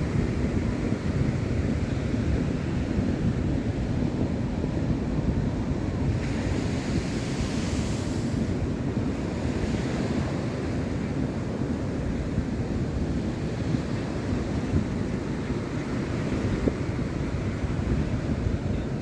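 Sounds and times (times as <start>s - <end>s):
ocean surf washing on beach: 0.0s - 19.0s
wind buffeting microphone: 0.0s - 19.0s.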